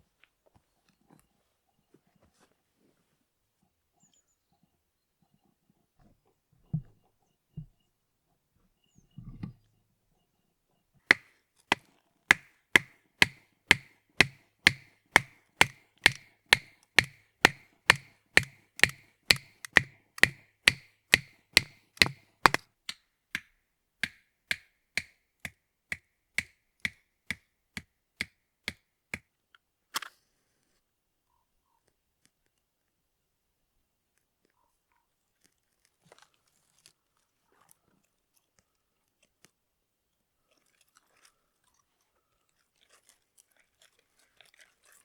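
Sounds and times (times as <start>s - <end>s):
rhythmic chopping strikes: 12.3s - 22.6s, 24.0s - 25.1s.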